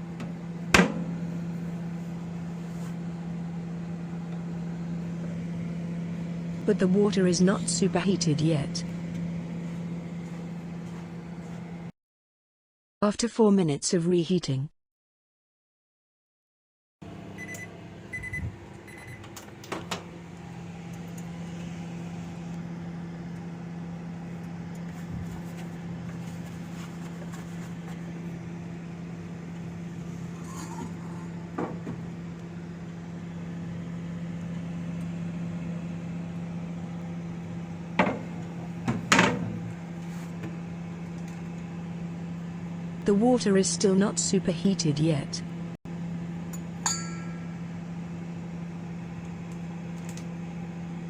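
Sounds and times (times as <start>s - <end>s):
microwave humming: 0.0s - 11.9s, 17.0s - 51.0s
microwave keypad beeping: 17.4s - 19.4s.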